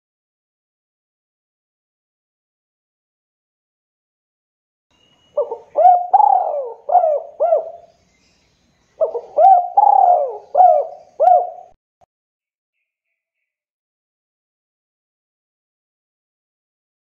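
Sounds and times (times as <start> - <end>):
dove cooing: 5.4 - 7.9, 9.0 - 11.8.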